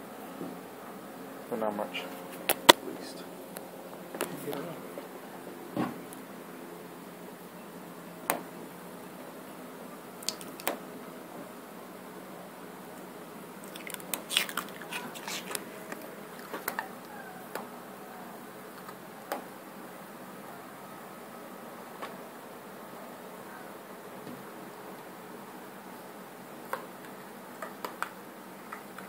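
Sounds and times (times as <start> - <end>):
tape peeling with crackles: 13.6 - 16.9.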